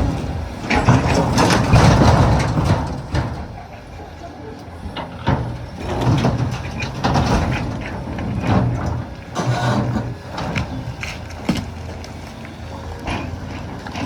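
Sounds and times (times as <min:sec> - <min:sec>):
excavator diesel engine: 0:00.0 - 0:14.0.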